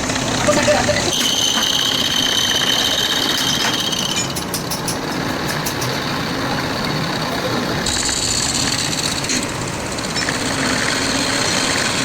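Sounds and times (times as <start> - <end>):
steady rumble: 0.0 - 1.1
machine high whine: 0.0 - 4.5, 5.8 - 12.0.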